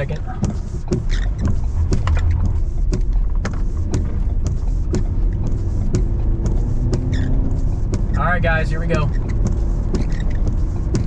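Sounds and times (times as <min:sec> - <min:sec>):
road rumble inside car: 0:00.0 - 0:11.0.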